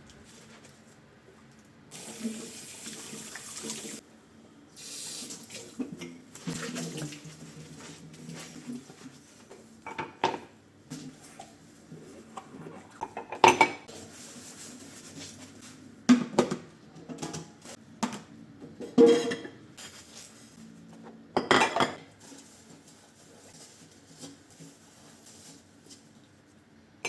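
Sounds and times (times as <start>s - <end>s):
dishes and cutlery clattering: 13.0s - 13.9s, 18.8s - 20.1s, 21.4s - 22.1s.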